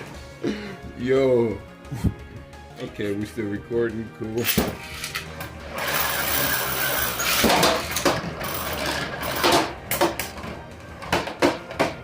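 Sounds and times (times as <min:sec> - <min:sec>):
spinning tops whirring: 0:04.8 - 0:09.8.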